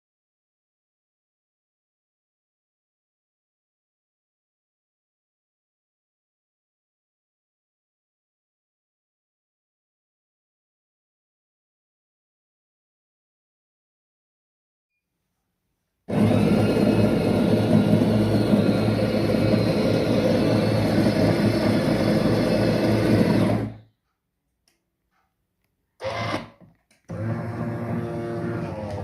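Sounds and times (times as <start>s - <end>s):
espresso machine pump humming: 16.1s - 23.8s.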